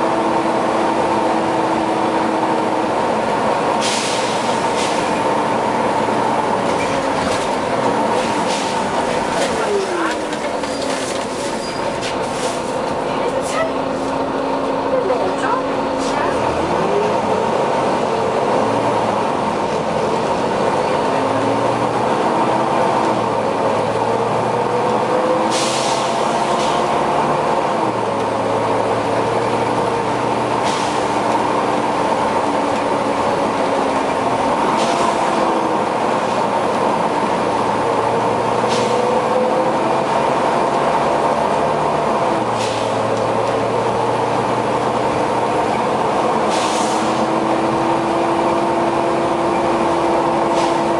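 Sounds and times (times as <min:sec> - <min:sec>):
bus diesel engine running: 0:00.0 - 0:50.9.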